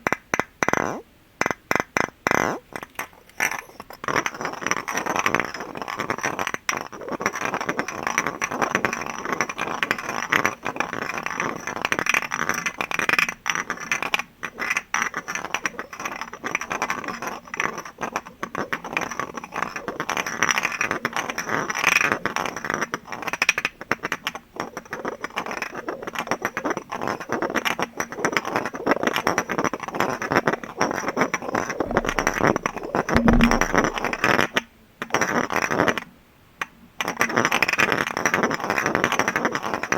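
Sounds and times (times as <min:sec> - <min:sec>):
tapping and scraping on glass: 0:31.9 - 0:34.2
short low tone: 0:31.9 - 0:34.3.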